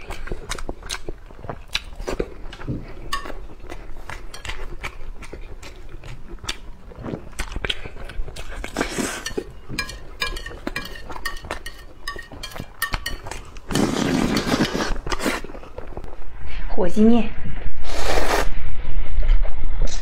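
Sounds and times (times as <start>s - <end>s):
chewing with wet mouth clicks: 0.0s - 13.8s
chopsticks scraping a plate: 3.1s - 5.0s, 8.3s - 15.6s.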